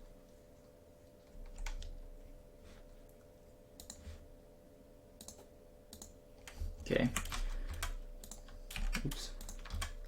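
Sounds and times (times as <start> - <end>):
faint steady hum: 0.0 - 10.0
computer keyboard keystrokes: 1.4 - 2.0, 5.2 - 10.0.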